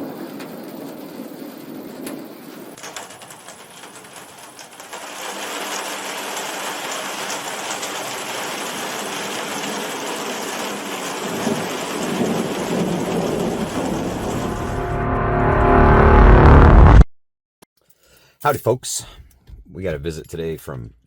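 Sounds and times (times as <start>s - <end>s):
heavy rain falling: 2.7s - 15.0s
low rumble: 12.6s - 17.1s.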